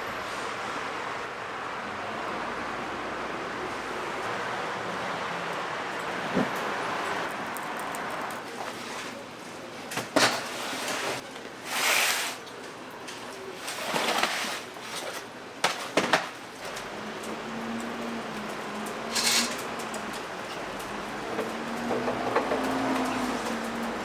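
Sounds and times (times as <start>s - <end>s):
kitchen knocks and clatters: 6.1s - 7.3s, 13.8s - 16.4s, 21.3s - 23.9s.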